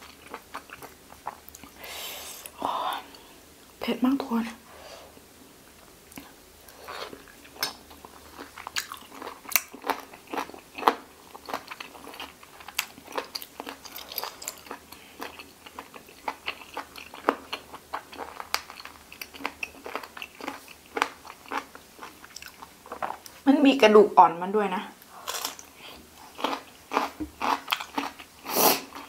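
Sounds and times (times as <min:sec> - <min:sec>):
person chewing crunchy cartilage: 0:00.0 - 0:01.8, 0:06.1 - 0:23.4, 0:25.0 - 0:29.0.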